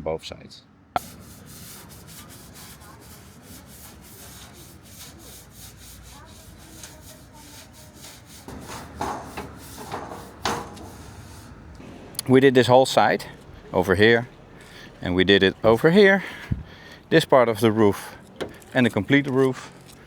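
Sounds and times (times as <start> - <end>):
scrubbing on steel roof: 1.0 - 14.8.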